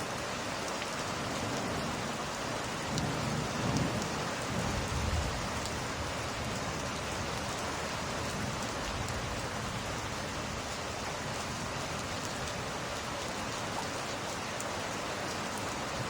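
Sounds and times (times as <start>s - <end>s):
steady rain: 0.0s - 16.0s
low rumble of thunder: 2.8s - 7.4s.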